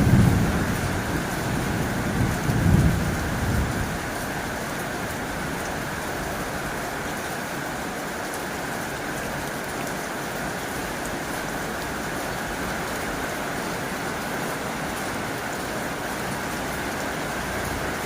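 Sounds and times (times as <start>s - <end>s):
heavy rain on a tin roof: 0.0s - 18.0s.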